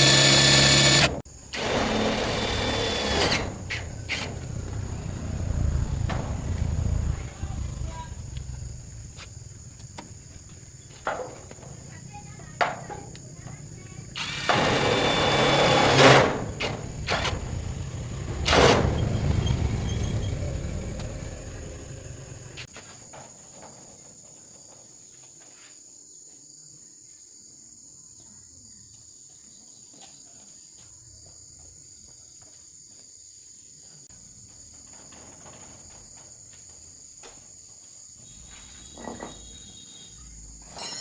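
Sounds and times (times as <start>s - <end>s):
insects chirring: 0.0s - 41.0s
loud low rumble: 4.3s - 9.8s.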